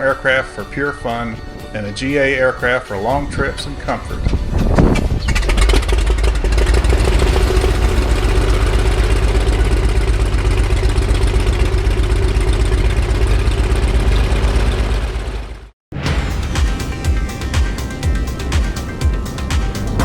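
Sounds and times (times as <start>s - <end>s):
light aircraft engine running: 4.2s - 15.7s.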